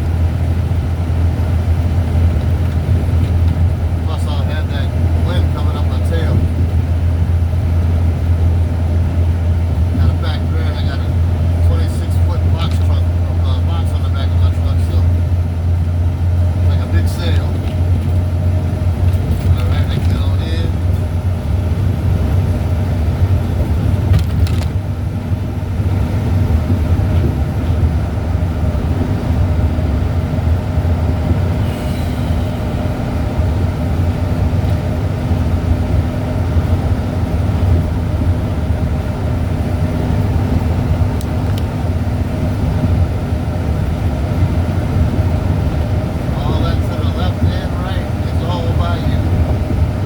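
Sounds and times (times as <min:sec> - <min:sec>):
vehicle engine and road noise: 0:00.0 - 0:50.0
steady hum: 0:24.8 - 0:50.0.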